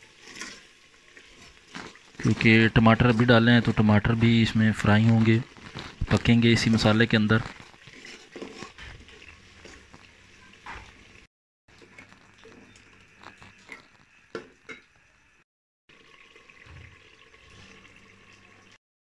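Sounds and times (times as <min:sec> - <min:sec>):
sauce sizzling in oil: 0:00.0 - 0:15.4
spoon scraping a pot: 0:00.2 - 0:03.6, 0:07.4 - 0:10.8, 0:11.8 - 0:14.9.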